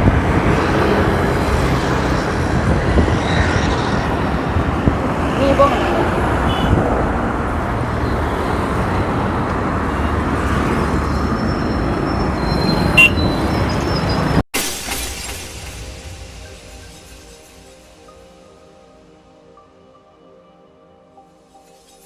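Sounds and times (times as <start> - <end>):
wind rush: 0.0 - 14.4
road and traffic noise: 0.0 - 22.0.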